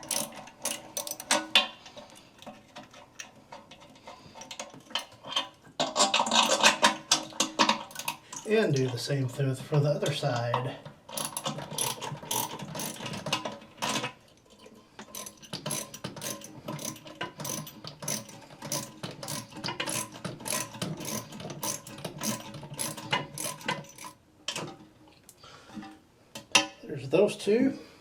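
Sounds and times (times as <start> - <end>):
socket ratchet clicking: 0.0 - 1.4, 11.1 - 13.3, 15.2 - 24.2.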